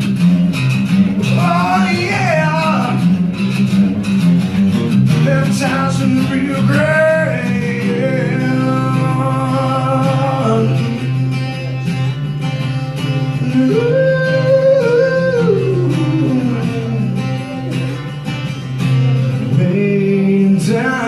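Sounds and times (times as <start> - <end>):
acoustic guitar playing: 0.0 - 21.0
person singing: 1.2 - 3.1, 5.2 - 11.0, 13.4 - 18.2.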